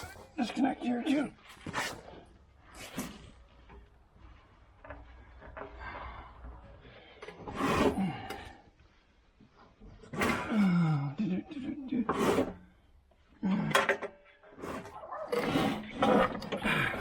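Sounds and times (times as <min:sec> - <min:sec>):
parts scraping and rubbing: 0:12.0 - 0:12.8, 0:14.4 - 0:17.0.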